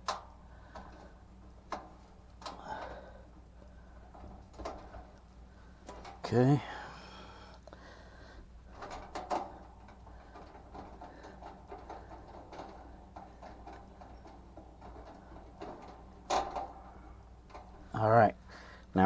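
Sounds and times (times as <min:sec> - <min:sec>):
faint steady hum: 0:00.0 - 0:19.0
hands tapping metal parts: 0:08.7 - 0:18.0.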